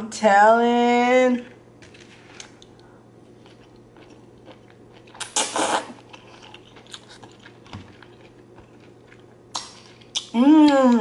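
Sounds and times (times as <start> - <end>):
person chewing with wet clicks: 2.4 - 11.0.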